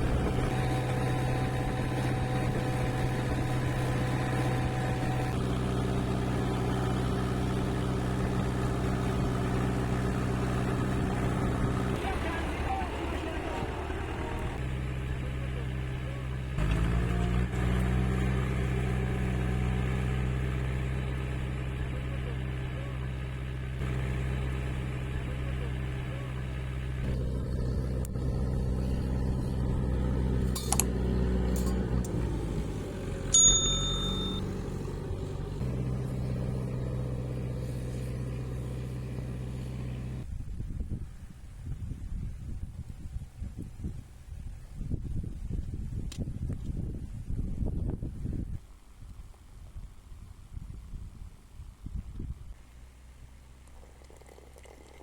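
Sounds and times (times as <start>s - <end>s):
tractor engine running: 0.0s - 40.4s
short metallic ping: 33.3s - 34.4s.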